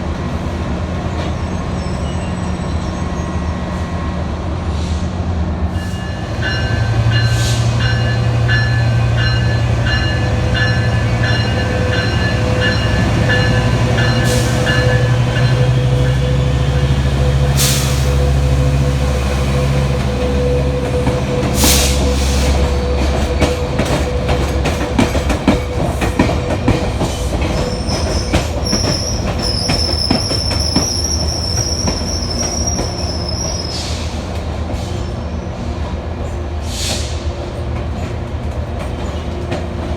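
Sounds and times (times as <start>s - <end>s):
train engine drone: 0.0s - 39.9s
train bell ringing: 5.7s - 17.6s
high-pitched wheel squeal: 27.6s - 34.0s.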